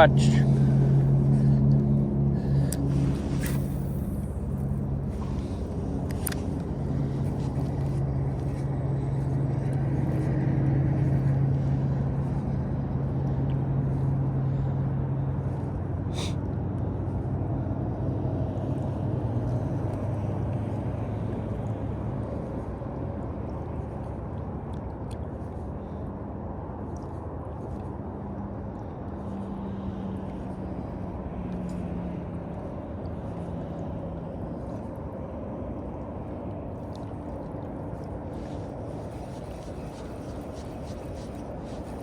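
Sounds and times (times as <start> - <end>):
vehicle engine humming: 0.0 - 17.3, 35.4 - 42.0
rushing background noise: 0.0 - 42.0.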